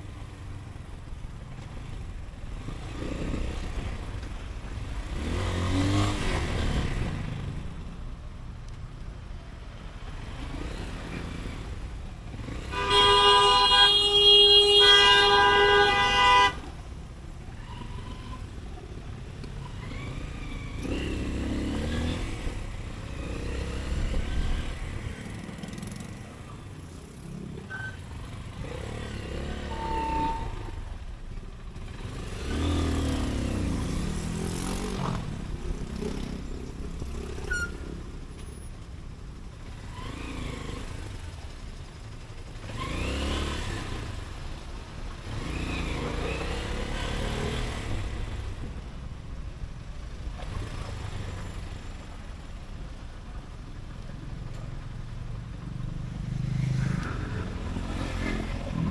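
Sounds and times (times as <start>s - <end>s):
low rumble of road noise: 0.0s - 58.9s
motorcycle engine accelerating: 17.4s - 38.7s, 39.6s - 58.9s.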